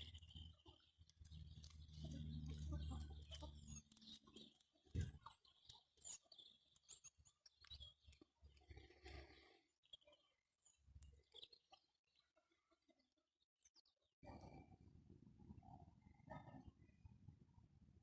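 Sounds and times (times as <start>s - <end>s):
low hum: 1.4s - 3.8s.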